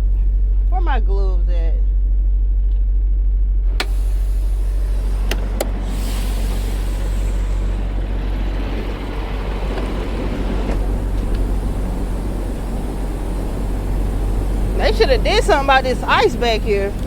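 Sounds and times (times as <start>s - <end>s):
diesel engine idling: 3.6s - 17.0s
steady outdoor hiss: 3.9s - 17.0s.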